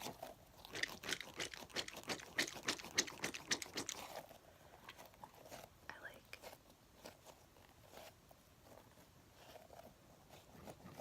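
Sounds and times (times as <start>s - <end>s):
sticky toy crackling: 0.0s - 5.7s.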